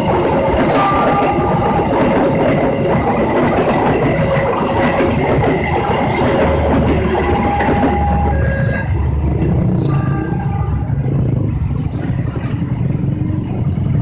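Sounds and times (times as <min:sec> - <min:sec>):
train wheels clattering over rails: 0:00.0 - 0:14.0.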